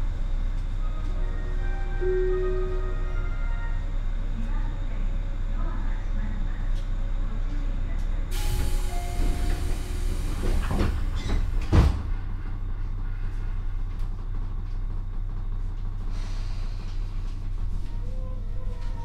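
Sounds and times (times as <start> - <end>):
train wheels rumbling on rails: 5.8 - 19.0
train clanks: 8.0 - 19.0.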